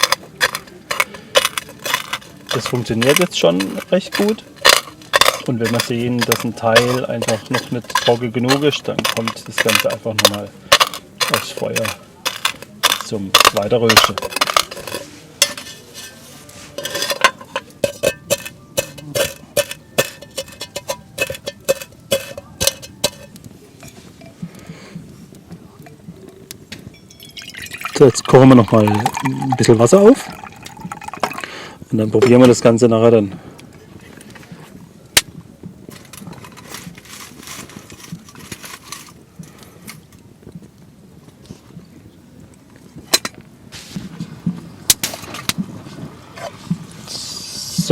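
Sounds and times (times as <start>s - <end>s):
pestle knocking in mortar: 0.0s - 15.7s
campfire crackling and popping: 0.0s - 15.9s, 17.2s - 47.9s
pestle grinding in mortar: 0.0s - 23.4s, 27.0s - 29.7s, 30.3s - 31.5s.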